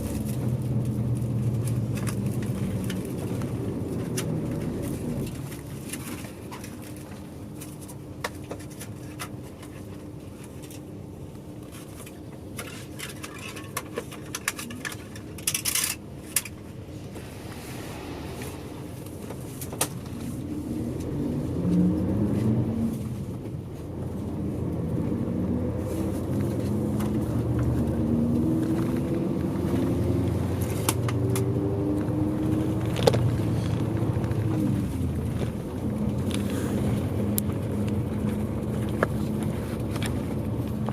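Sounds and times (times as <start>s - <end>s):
bus accelerating through gears: 0.0s - 6.5s, 16.1s - 40.9s.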